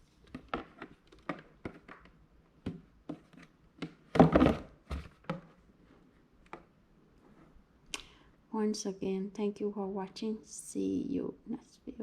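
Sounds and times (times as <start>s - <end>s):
plastic clatter and rub: 0.2s - 5.6s.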